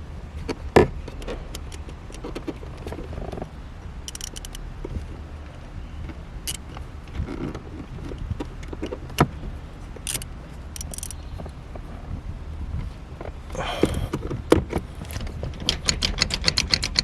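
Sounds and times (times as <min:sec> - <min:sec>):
low steady hum: 0:00.0 - 0:16.0
metallic clicks of tools: 0:04.0 - 0:04.6, 0:06.4 - 0:06.7, 0:10.0 - 0:11.2.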